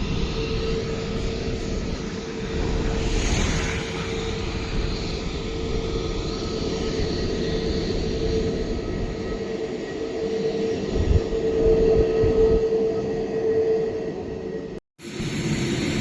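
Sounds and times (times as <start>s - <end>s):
jet engines rumbling: 0.0s - 16.0s
jet engine hiss: 15.0s - 16.0s.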